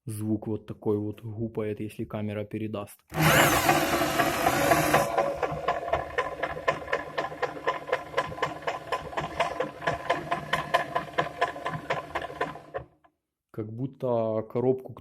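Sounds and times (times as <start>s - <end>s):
drill motor hum: 3.1s - 12.9s
gearbox knocking: 3.2s - 12.9s.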